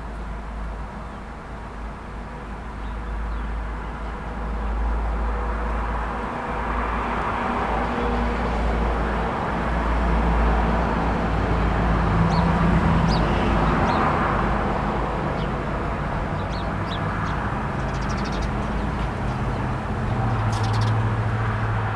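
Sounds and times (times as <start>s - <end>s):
road traffic rumble: 0.1s - 21.9s
bird chirps: 16.4s - 21.1s.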